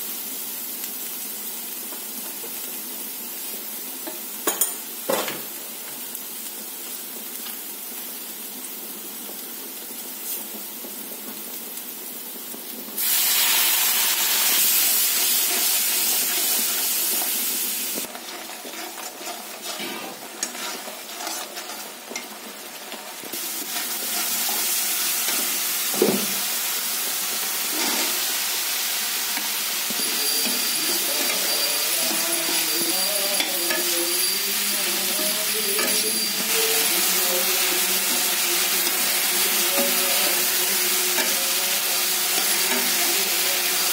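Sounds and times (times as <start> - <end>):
onions sizzling in a pan: 0.0 - 43.9
steel spoon scraping a pan: 18.0 - 23.0, 27.6 - 28.3, 29.4 - 43.6.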